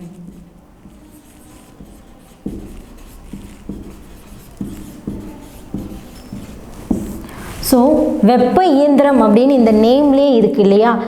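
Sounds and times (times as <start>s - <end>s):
marker scratching on board: 0.0s - 8.2s.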